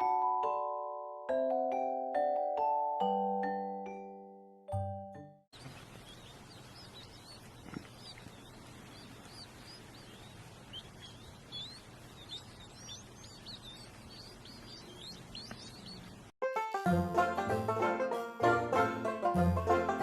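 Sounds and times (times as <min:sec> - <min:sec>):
steady background hiss: 0:05.6 - 0:16.3
small birds chirping: 0:05.6 - 0:16.4.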